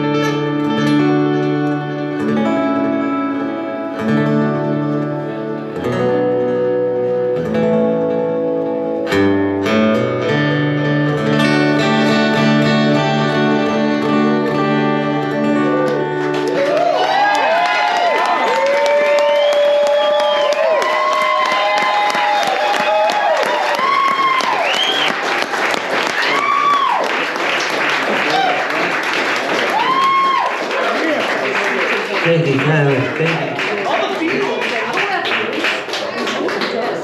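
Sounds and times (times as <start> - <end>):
acoustic guitar chords: 0.0 - 16.8, 32.2 - 34.2
audience cheering: 15.9 - 35.5.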